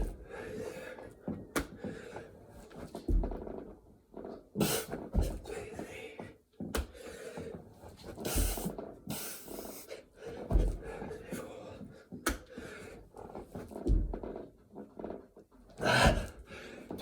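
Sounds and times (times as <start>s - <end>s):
man panting hard: 0.0s - 2.2s, 15.8s - 17.0s.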